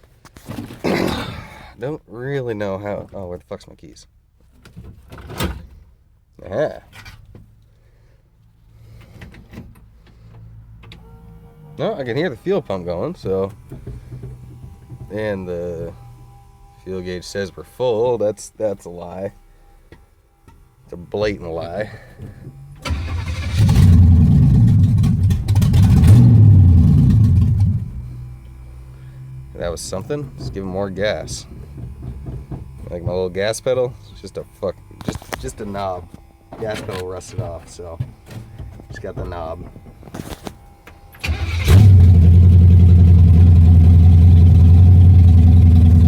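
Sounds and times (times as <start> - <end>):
car engine cranking and starting: 8.8 - 17.5, 21.2 - 46.0
engine running loud and rough: 22.8 - 34.1, 41.2 - 46.0.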